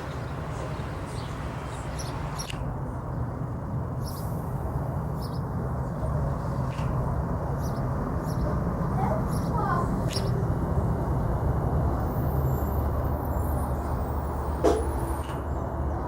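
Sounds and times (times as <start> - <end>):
birds chirping: 0.0 - 3.2, 5.1 - 6.8, 7.5 - 10.5.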